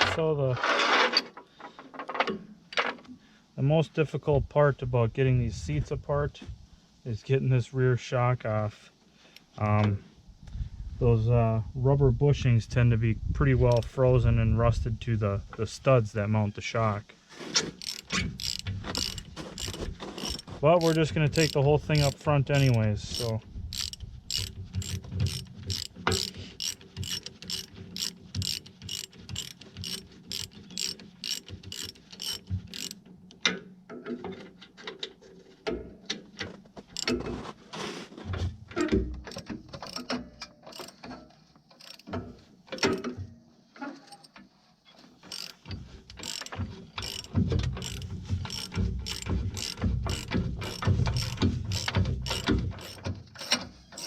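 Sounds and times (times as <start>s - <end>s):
ratchet wrench clicking: 17.8s - 33.0s, 39.3s - 40.1s, 40.7s - 41.0s, 41.8s - 42.1s, 45.3s - 54.0s.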